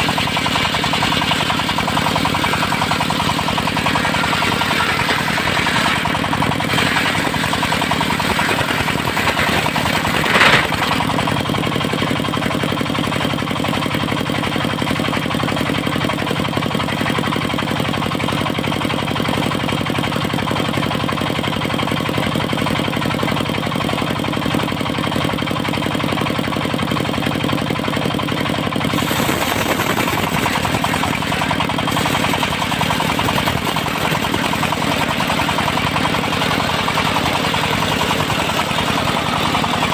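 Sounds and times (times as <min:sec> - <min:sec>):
sawmill engine knocking: 0:00.0 - 0:39.9.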